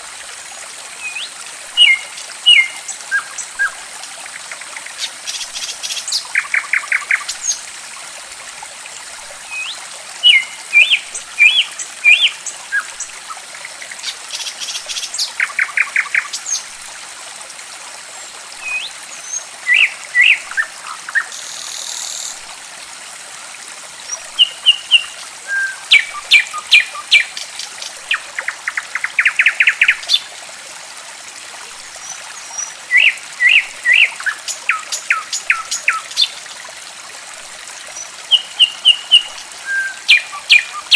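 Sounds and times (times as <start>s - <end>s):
trickle of running water: 0.0s - 40.9s.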